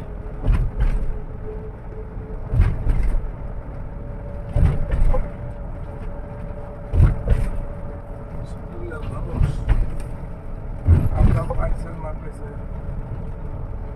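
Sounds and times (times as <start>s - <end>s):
bus engine and road rumble: 0.0s - 13.9s
heavy low thumps: 6.8s - 11.8s.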